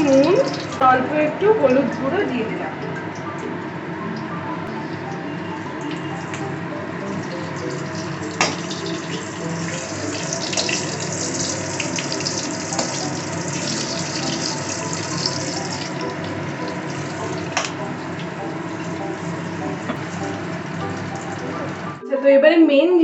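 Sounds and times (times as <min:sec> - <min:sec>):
potatoes sizzling in hot oil: 0:00.0 - 0:00.9, 0:04.8 - 0:22.0.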